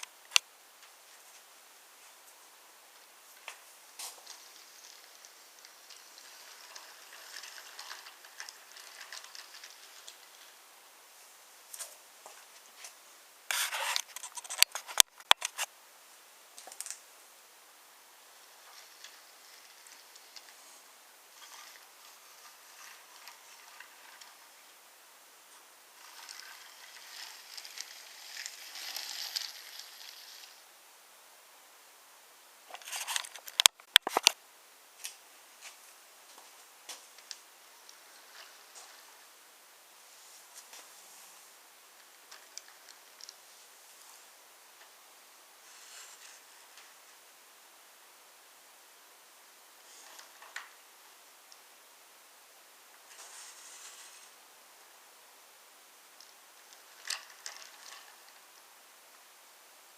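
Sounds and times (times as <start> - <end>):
wooden scraping rub: 3.3 - 10.6, 11.7 - 15.7, 18.2 - 30.6, 32.7 - 34.4, 35.6 - 39.4, 45.6 - 47.0, 53.1 - 54.4
wooden toy train clacks: 3.5 - 10.6, 56.2 - 58.4
wooden toy train pieces clacking: 4.0 - 10.6, 13.5 - 15.7, 18.4 - 20.6, 21.4 - 24.7, 26.0 - 30.6, 32.7 - 34.4, 56.2 - 58.6.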